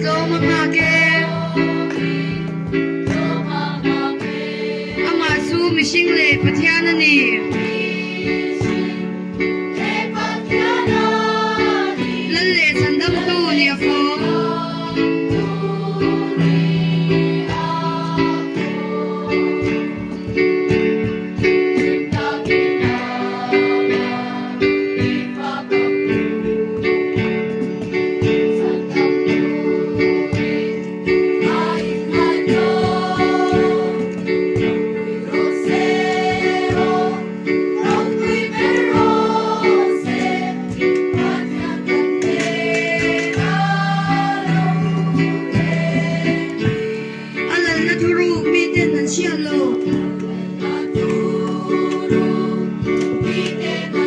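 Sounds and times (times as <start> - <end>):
group singing: 0.0 - 6.4, 7.1 - 47.6, 49.8 - 54.0.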